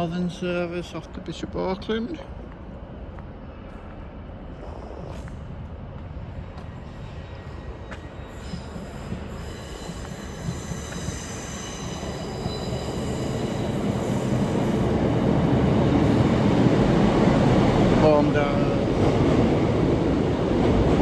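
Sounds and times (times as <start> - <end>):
train rumble: 0.0 - 21.0
train brakes squealing: 6.8 - 16.5.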